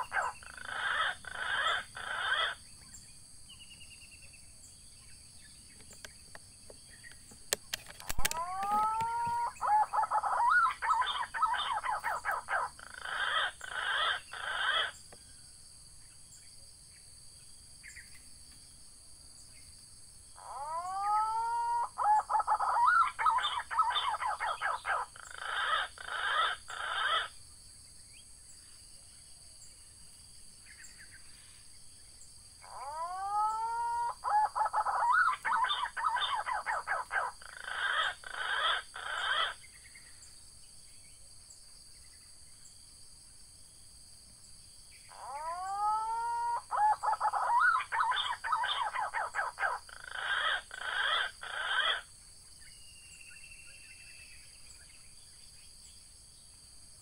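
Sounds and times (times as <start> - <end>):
pigeon calling: 0.0 - 2.6, 7.1 - 15.0, 20.4 - 27.3, 32.6 - 39.6, 45.1 - 52.1
high insect drone: 0.0 - 57.0.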